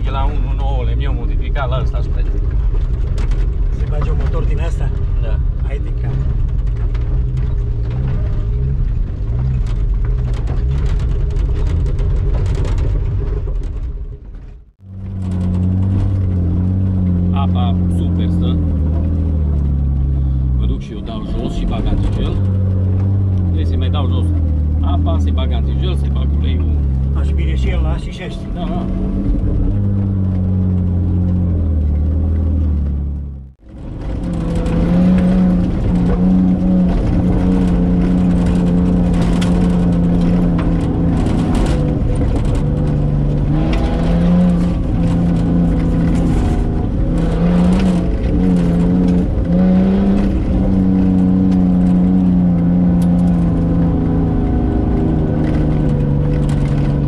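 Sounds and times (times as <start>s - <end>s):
knocks and rattles from bumps: 0.0s - 20.1s, 21.0s - 57.0s
truck engine revving: 14.6s - 57.0s.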